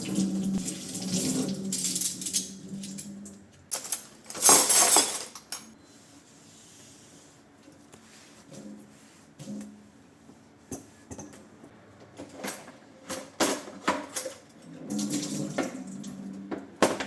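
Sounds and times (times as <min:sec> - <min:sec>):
kitchen tap running: 0:00.0 - 0:03.2.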